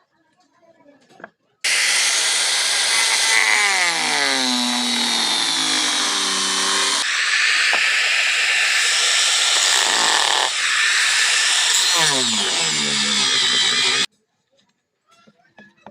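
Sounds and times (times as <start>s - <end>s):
power tool hissing on iron: 1.7s - 14.1s.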